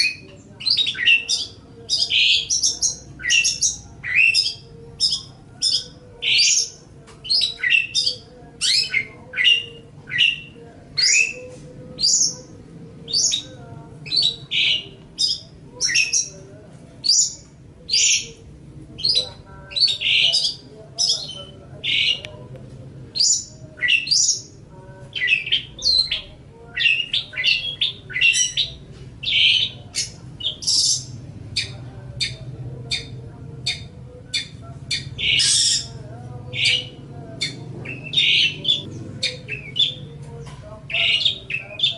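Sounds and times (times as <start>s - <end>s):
shrike chattering song: 23.2s - 40.1s.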